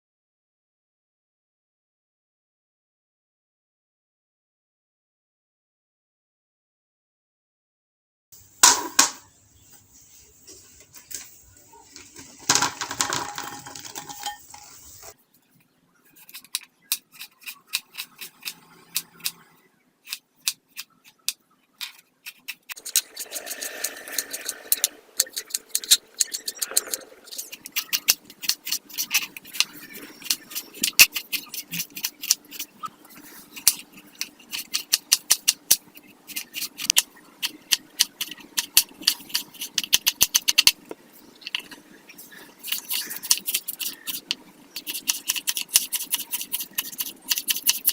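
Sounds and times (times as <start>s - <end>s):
kitchen utensils clattering: 11.6s - 15.1s.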